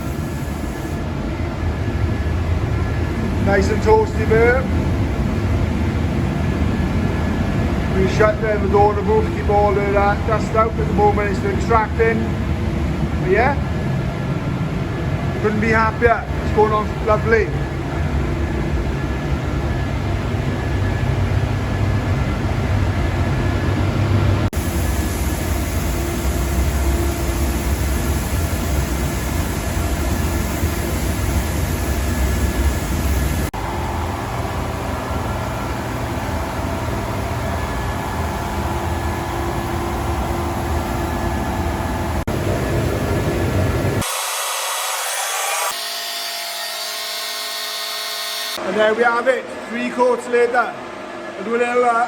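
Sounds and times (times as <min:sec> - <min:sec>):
bright hiss: 0:00.0 - 0:01.0, 0:24.6 - 0:33.5
extraction fans droning: 0:00.0 - 0:44.3.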